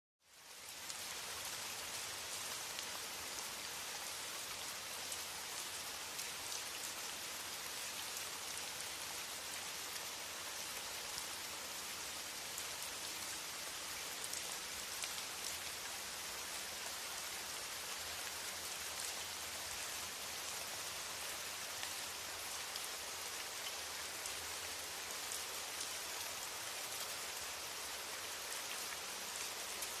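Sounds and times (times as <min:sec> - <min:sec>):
steady rain: 0:00.2 - 0:30.0.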